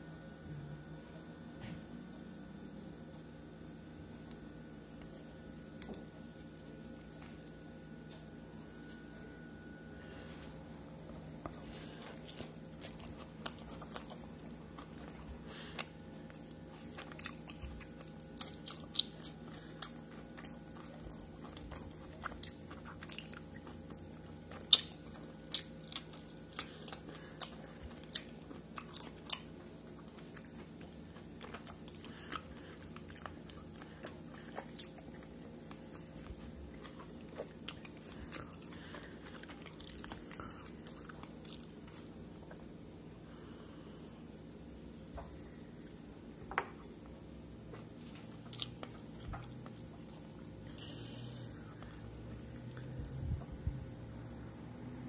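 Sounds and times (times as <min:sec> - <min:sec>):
steady low hum: 0:00.0 - 0:55.0
biting and chewing: 0:11.4 - 0:42.1, 0:48.3 - 0:51.2.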